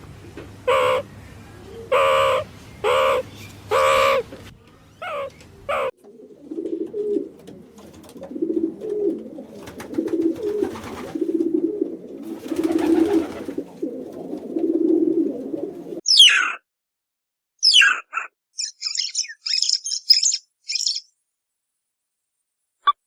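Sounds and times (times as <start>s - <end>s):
pigeon cooing: 0.7s - 4.3s, 5.0s - 16.6s
high downward bird call: 16.0s - 16.6s, 17.6s - 21.1s.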